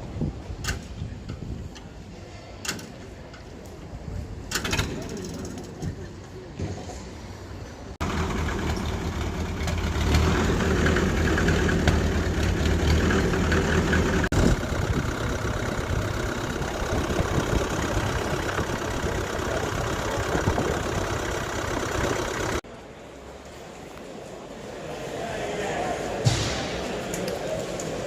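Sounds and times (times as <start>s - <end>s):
tractor engine idling: 8.0s - 22.6s.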